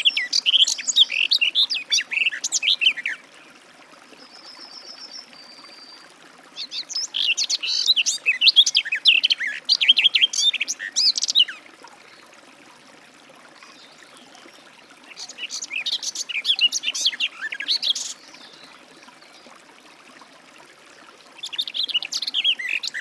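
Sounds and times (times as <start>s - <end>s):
bird warbling song: 0.0s - 3.2s, 6.6s - 11.6s, 13.7s - 19.5s, 21.4s - 23.0s.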